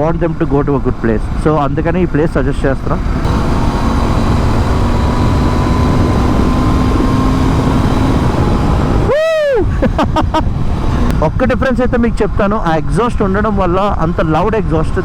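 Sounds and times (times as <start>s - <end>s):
motorcycle engine hum: 0.7s - 12.2s
wind rush on microphone: 2.8s - 15.0s
brief rising and falling tone: 3.2s - 9.6s.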